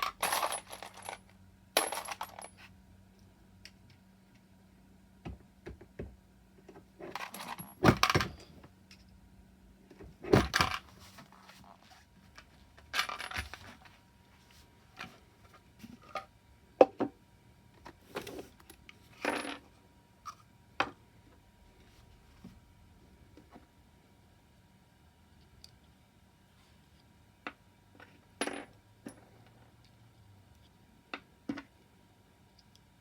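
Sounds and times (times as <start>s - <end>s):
brass cases clinking against metal: 0.0s - 2.6s.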